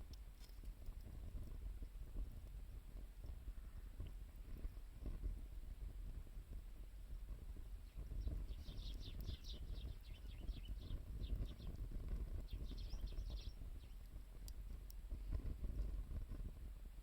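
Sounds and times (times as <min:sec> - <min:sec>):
wood fire crackling: 0:00.0 - 0:03.4, 0:06.4 - 0:16.6
small bird chirping: 0:07.8 - 0:14.2.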